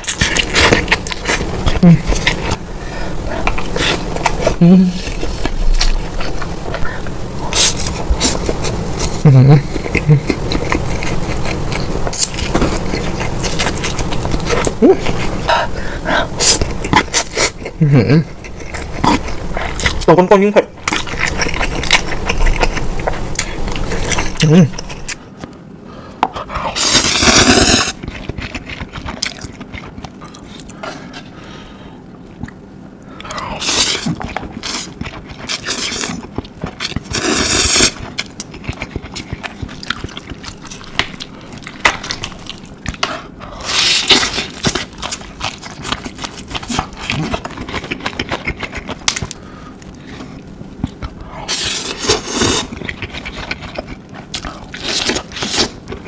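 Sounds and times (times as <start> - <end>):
soft chewing: 0.0 - 20.2, 20.8 - 25.6, 26.2 - 56.0
person slurping noodles: 26.5 - 28.0, 37.0 - 38.0, 51.4 - 52.8.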